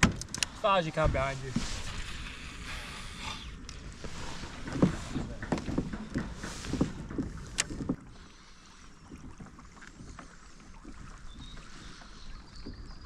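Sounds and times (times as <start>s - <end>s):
water knocking against kayak hull: 0.0s - 2.0s, 3.9s - 8.1s
water noise: 0.0s - 13.0s.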